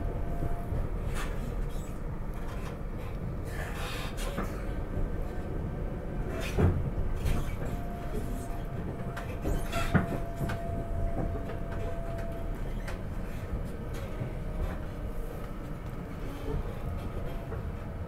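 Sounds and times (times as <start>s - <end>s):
train rumbling along track: 0.0s - 18.0s.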